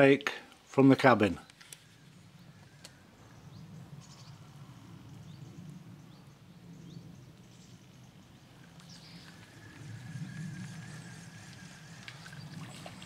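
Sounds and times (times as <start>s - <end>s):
low steady rumble: 2.0s - 13.0s
high rising bird chirps: 8.7s - 12.9s.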